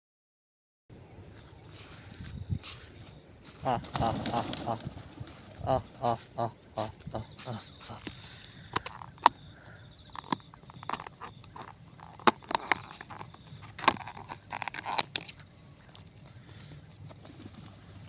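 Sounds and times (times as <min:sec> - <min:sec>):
sharp clicks and crackles: 0:10.0 - 0:16.1.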